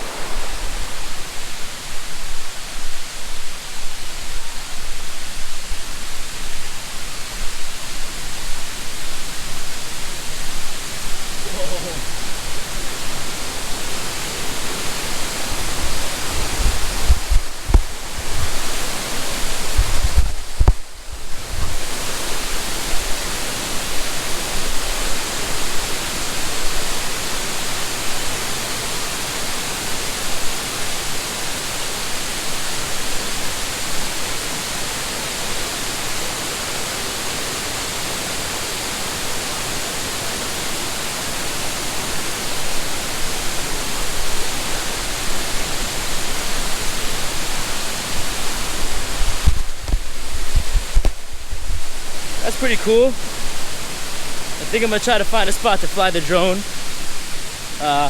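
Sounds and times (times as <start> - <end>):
waterfall rushing: 0.0 - 58.0
low thumps and knocks: 16.3 - 18.7, 19.7 - 21.8, 48.9 - 52.0.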